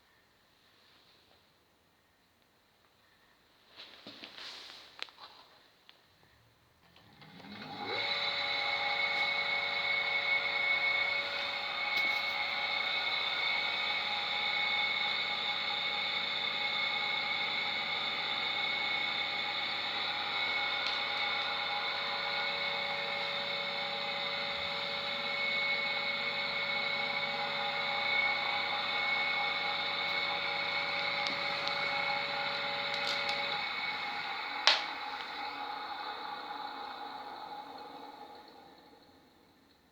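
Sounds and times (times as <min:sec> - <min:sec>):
electric motor whining: 0:07.4 - 0:38.8.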